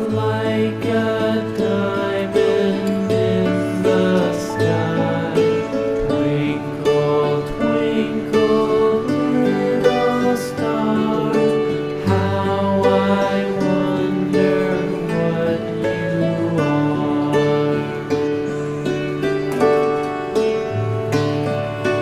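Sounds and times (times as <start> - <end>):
gentle plucked instrumental music: 0.0 - 22.0.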